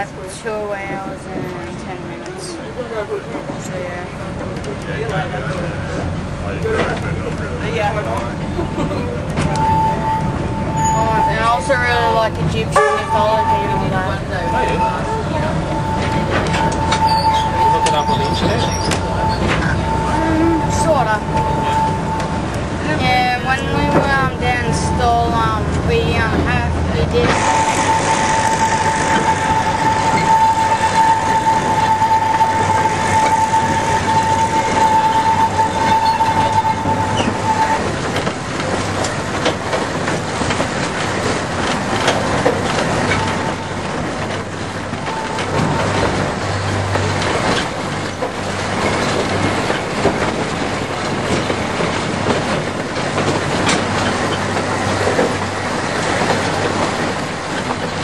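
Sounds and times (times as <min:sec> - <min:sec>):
train wheels rumbling and clicking: 0:00.0 - 0:58.0
high wheel squeal: 0:08.6 - 0:39.6, 0:41.8 - 0:50.2.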